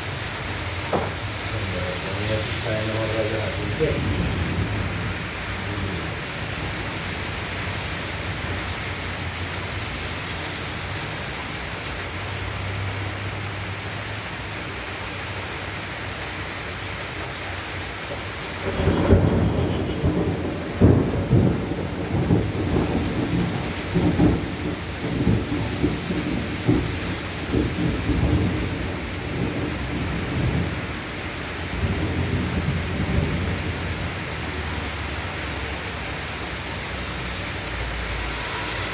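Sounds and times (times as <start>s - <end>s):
rain hissing: 0.0s - 38.9s
thunder cracks and rumbles: 0.8s - 9.2s, 18.1s - 35.7s.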